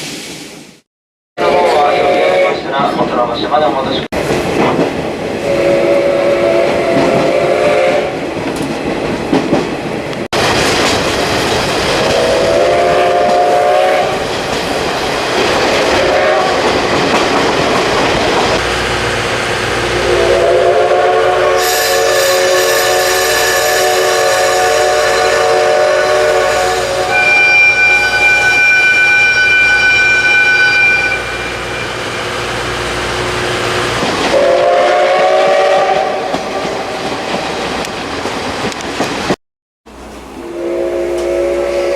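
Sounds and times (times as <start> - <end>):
steam whistle blasts: 1.4 - 2.6, 5.4 - 8.2, 12.1 - 14.2, 16.0 - 16.6, 19.8 - 32.0, 34.3 - 37.0, 40.4 - 41.9
train noise: 1.4 - 41.9
higher steady tone: 18.6 - 22.2.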